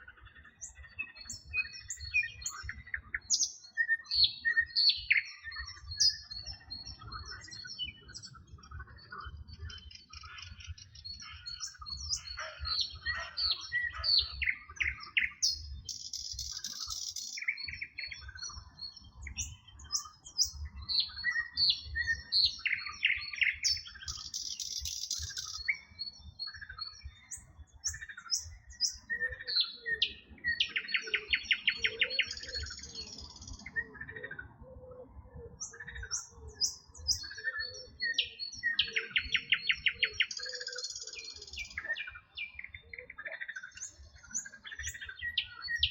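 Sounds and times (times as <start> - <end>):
songbirds chirping and trilling: 0.0 - 45.9
frogs croaking: 8.9 - 18.4.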